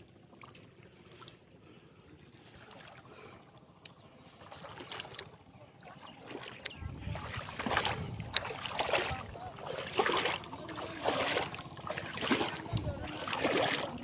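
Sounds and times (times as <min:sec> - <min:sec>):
shallow water sloshing: 0:00.0 - 0:14.0
soft water splashes: 0:00.0 - 0:14.0
wind rumble on microphone: 0:06.6 - 0:09.7, 0:12.2 - 0:14.0.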